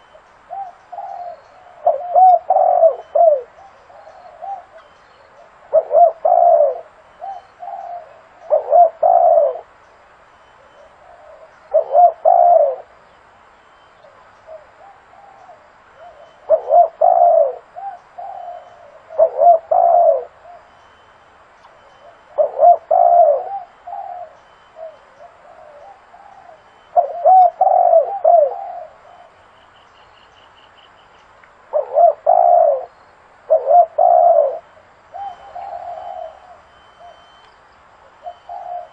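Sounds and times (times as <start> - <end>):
dove cooing: 0.0 - 9.8, 10.6 - 13.0, 14.1 - 21.0, 21.7 - 29.5, 31.7 - 37.4, 38.0 - 38.9.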